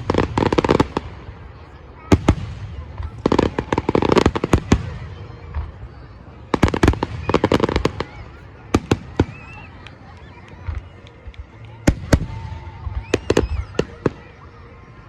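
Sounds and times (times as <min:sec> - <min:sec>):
fireworks crackling bangs: 0:00.0 - 0:14.6
loud firework bangs: 0:02.1 - 0:05.9, 0:06.5 - 0:09.8.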